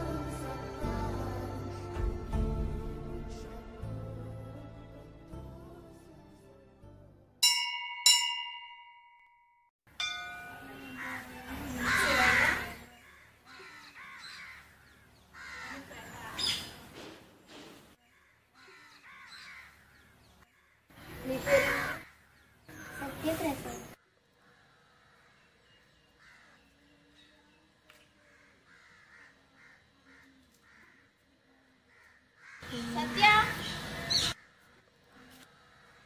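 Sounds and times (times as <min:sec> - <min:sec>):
bell-like dings: 0:07.4 - 0:11.0
birds calling: 0:10.5 - 0:31.2, 0:31.9 - 0:36.0.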